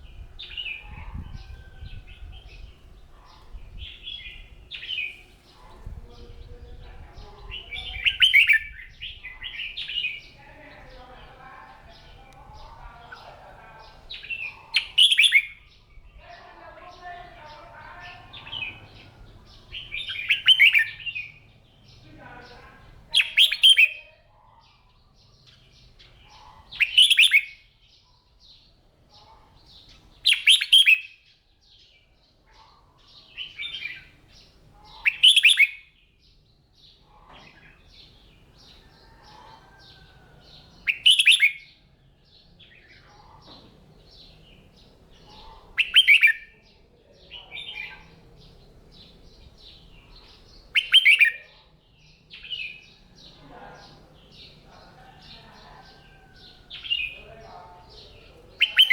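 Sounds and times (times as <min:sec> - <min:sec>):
bird singing song phrases: 0:00.0 - 0:58.9
soft bird chirps: 0:24.7 - 0:58.9.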